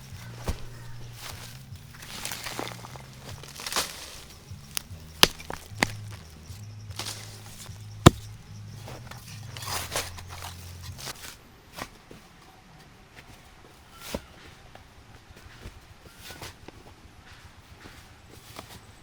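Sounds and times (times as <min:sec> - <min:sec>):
rustling and handling noise: 0:00.0 - 0:19.0
sharp knocks: 0:07.0 - 0:08.4.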